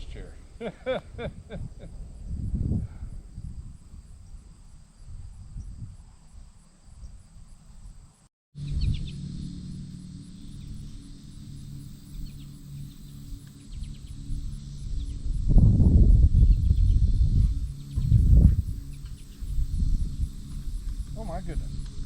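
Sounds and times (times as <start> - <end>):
steady low hum: 8.6 - 22.0
uneven low rumble: 8.6 - 22.0
small birds chirping: 12.0 - 15.4, 16.4 - 22.0.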